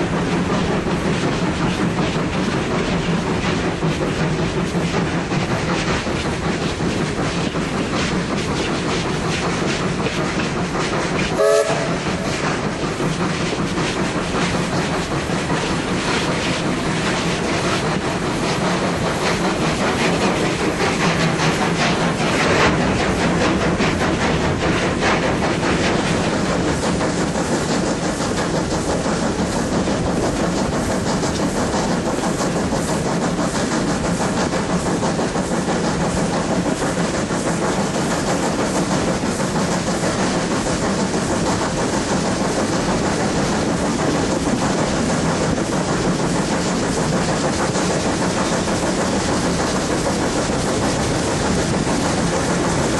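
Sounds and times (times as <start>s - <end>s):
train wheels clacking over rail joints: 0.0s - 52.9s
steam locomotive whistle toot: 11.4s - 12.2s.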